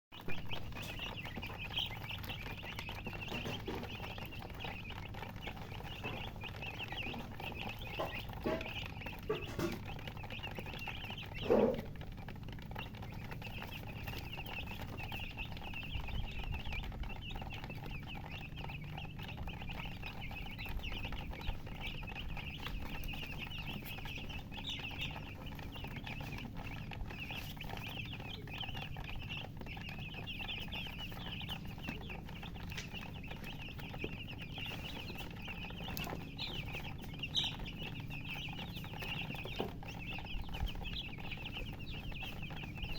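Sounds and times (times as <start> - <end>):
baby chicks peeping: 0.1 - 42.9.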